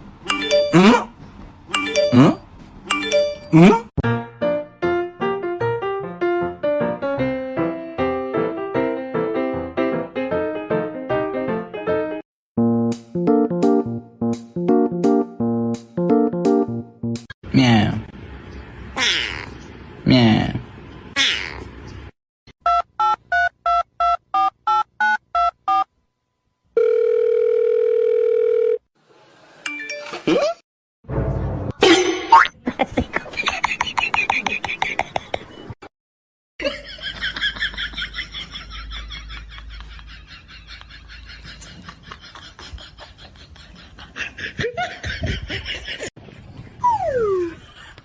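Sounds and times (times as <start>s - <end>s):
person laughing: 32.6s - 35.5s, 36.6s - 46.1s, 47.0s - 48.0s.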